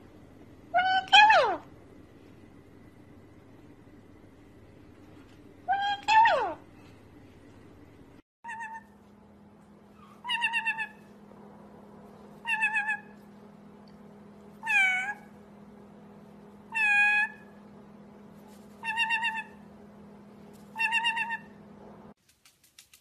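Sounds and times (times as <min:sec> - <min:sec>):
faint steady hum: 0:00.0 - 0:23.0
parrot mimicking cat meow: 0:00.7 - 0:01.7, 0:05.7 - 0:06.6, 0:08.4 - 0:08.9, 0:10.2 - 0:11.0, 0:12.4 - 0:13.2, 0:14.6 - 0:15.3, 0:16.7 - 0:17.6, 0:18.8 - 0:19.6, 0:20.8 - 0:21.6.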